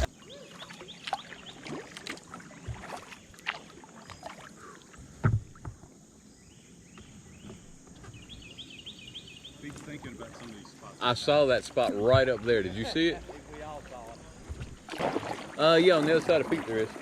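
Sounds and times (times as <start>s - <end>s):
paddle splashing in water: 0.0s - 5.8s, 9.5s - 17.0s.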